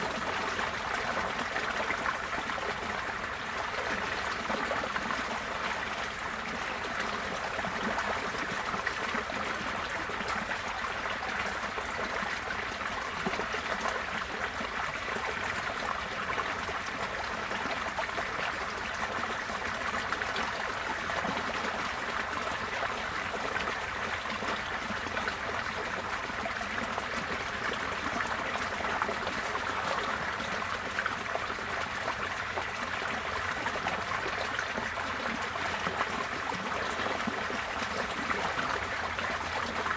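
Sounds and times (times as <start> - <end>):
water rushing in a stream: 0.0 - 39.9.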